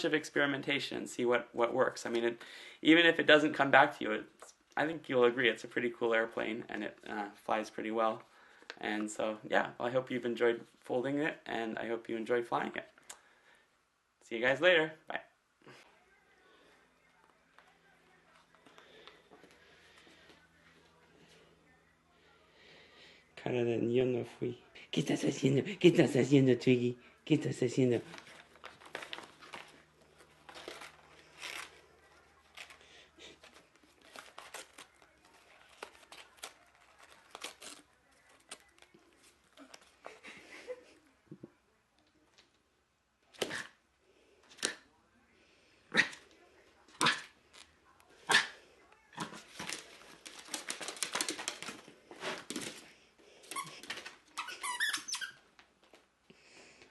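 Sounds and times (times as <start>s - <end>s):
faint crinkling and rustling: 27.9s - 43.4s, 46.3s - 56.9s.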